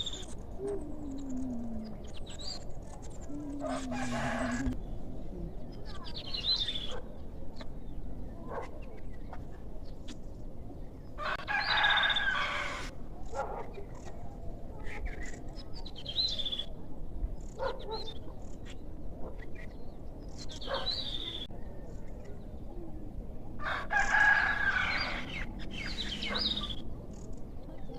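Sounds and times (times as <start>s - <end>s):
bird calls: 0.0s - 10.3s, 17.4s - 23.0s, 24.0s - 27.9s.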